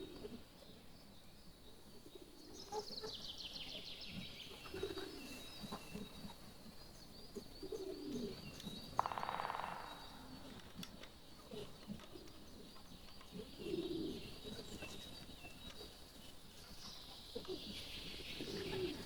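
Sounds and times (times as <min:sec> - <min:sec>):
dove cooing: 0:00.0 - 0:00.4, 0:04.6 - 0:06.3, 0:07.6 - 0:08.4, 0:13.3 - 0:15.0, 0:17.4 - 0:19.0
songbird trill: 0:00.0 - 0:19.0.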